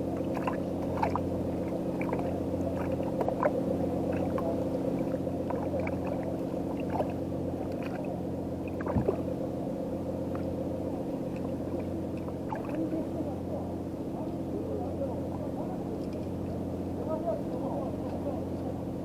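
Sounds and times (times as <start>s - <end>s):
boat engine idling: 0.0s - 19.0s
faint water gurgles: 0.0s - 19.0s.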